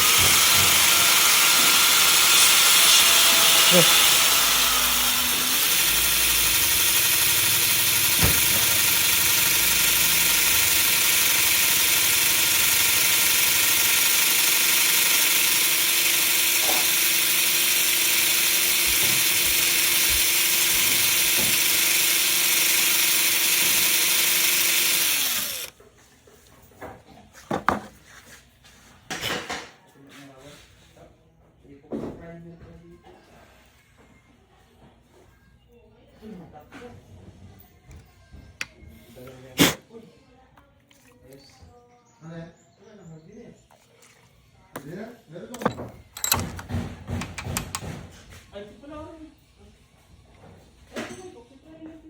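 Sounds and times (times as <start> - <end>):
power tool running: 0.0 - 25.8, 45.6 - 48.0.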